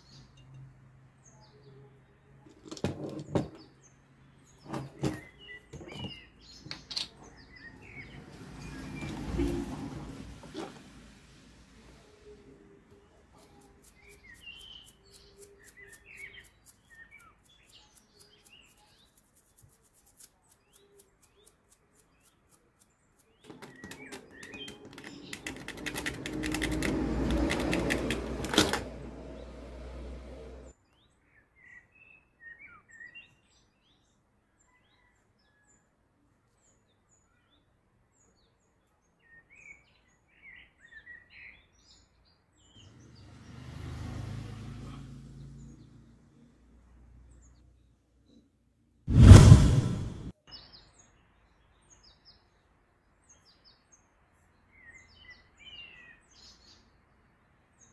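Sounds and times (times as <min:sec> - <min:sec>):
birds chirping: 0:02.6 - 0:09.6
low rumble: 0:49.1 - 0:50.3.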